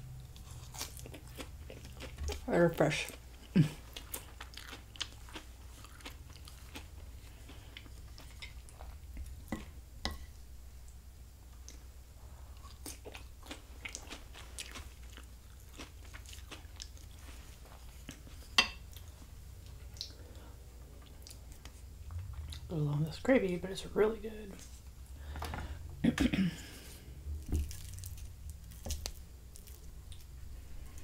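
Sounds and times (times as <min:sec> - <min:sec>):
chewing and biting food: 0:00.2 - 0:02.4, 0:03.0 - 0:09.4, 0:12.5 - 0:18.3, 0:27.4 - 0:30.4
low hum: 0:18.0 - 0:31.0.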